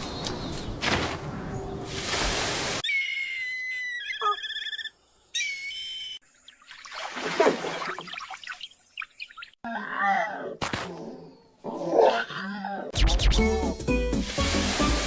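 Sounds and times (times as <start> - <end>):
irregular splashing: 1.8 - 2.8, 6.7 - 8.8, 14.1 - 15.0.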